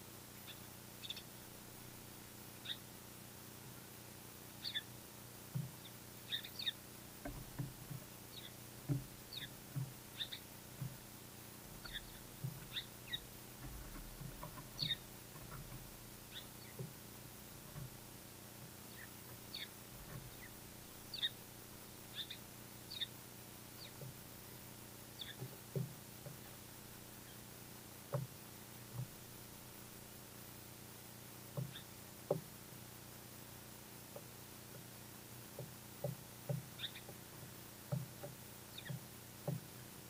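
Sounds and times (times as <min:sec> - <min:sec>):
songbirds chirping: 0:00.0 - 0:40.0
soft low taps: 0:05.5 - 0:05.8, 0:07.2 - 0:21.4, 0:23.8 - 0:27.2, 0:28.1 - 0:30.0, 0:35.6 - 0:39.7.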